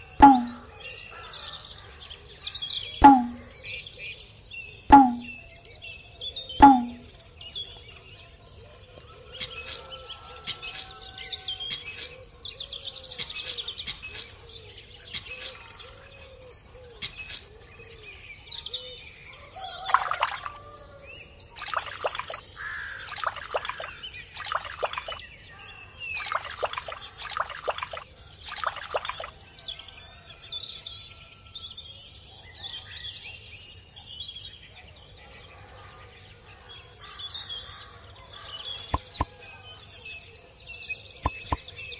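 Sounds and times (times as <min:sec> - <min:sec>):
small birds chirping: 0:19.6 - 0:29.6.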